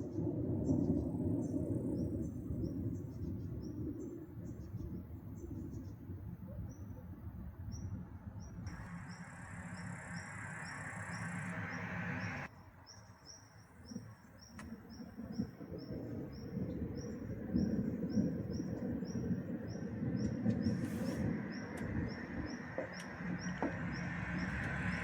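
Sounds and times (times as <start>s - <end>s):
low rumbling noise: 7.4s - 12.5s, 14.7s - 25.0s
hiss: 20.7s - 21.3s.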